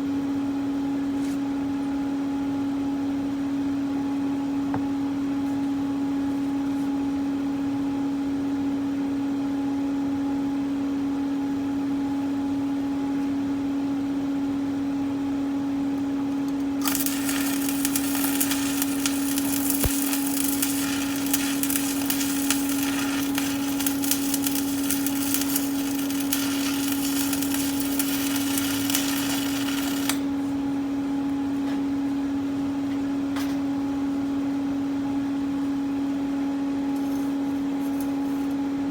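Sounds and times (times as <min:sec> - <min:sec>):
steady low hum: 0:00.0 - 0:38.9
welding arc crackling: 0:16.8 - 0:30.3.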